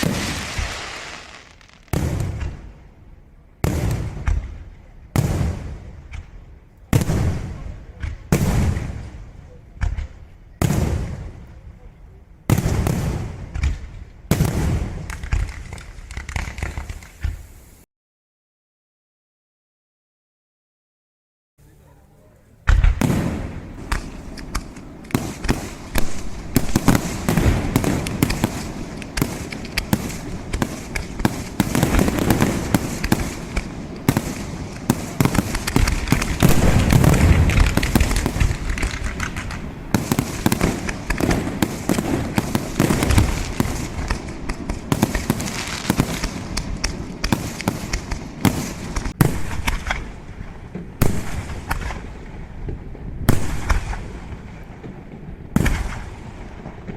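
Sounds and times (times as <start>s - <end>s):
fireworks bangs and crackling: 0.0s - 17.8s, 22.6s - 56.9s
low rumbling booms: 22.7s - 44.8s.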